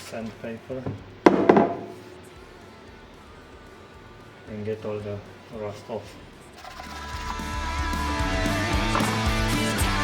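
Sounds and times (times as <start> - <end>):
guitar rock music: 6.8 - 10.0.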